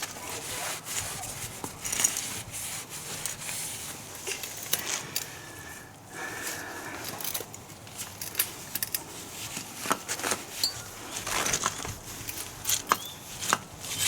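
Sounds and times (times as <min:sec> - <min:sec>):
rubbing and scraping: 0:00.0 - 0:05.2, 0:08.0 - 0:14.0.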